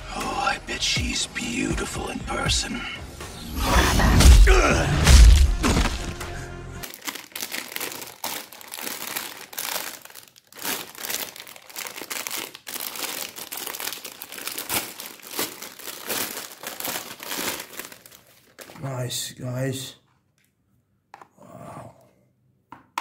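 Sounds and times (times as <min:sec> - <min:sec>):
trailer audio with music: 0:00.0 - 0:06.8
plastic bag crinkling: 0:05.4 - 0:19.1.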